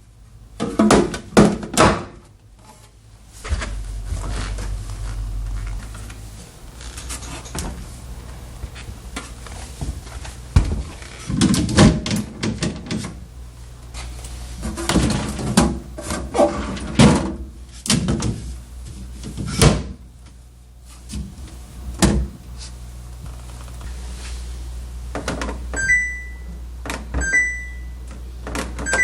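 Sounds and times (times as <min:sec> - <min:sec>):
refrigerator doors opening and shutting: 0:10.5 - 0:13.2, 0:19.2 - 0:20.0, 0:22.0 - 0:22.4, 0:25.2 - 0:27.8, 0:28.4 - 0:29.0.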